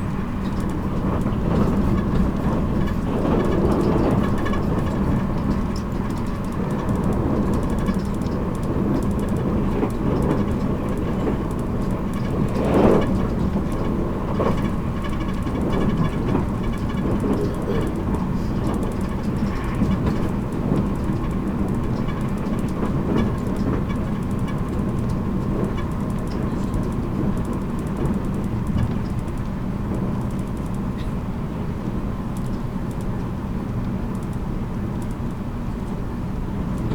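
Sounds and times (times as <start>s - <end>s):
electric train rolling: 0.0s - 34.0s.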